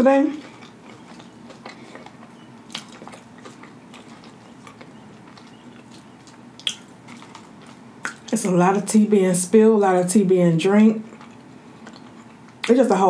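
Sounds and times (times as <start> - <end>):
person chewing food: 0.2 - 8.4, 11.0 - 12.8
mouth clicks: 0.5 - 7.4, 8.0 - 8.4.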